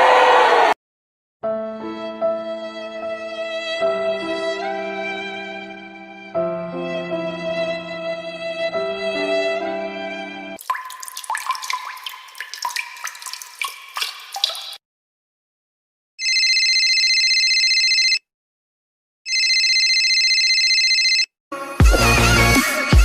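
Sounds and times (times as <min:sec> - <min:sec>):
rapid water drips: 0:10.6 - 0:14.8
electronic ringing tone: 0:16.2 - 0:18.2, 0:19.3 - 0:21.3.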